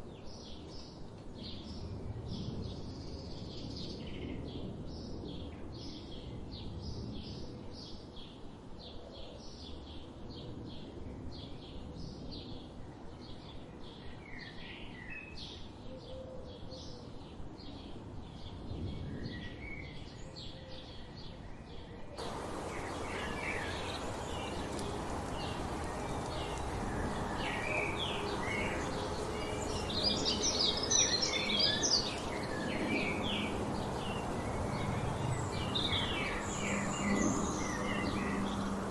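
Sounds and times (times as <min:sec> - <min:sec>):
varied bird chirps: 0:22.2 - 0:38.9.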